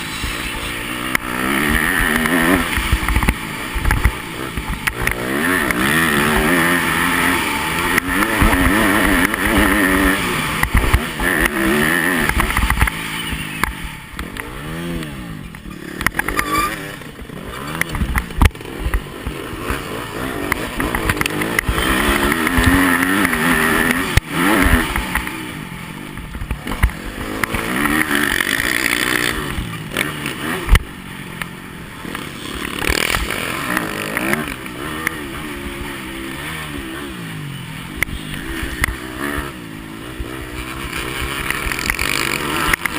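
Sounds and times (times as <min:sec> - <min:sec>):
sharp thumps: 0:00.0 - 0:25.4
motocross bike engine revving: 0:00.0 - 0:42.9.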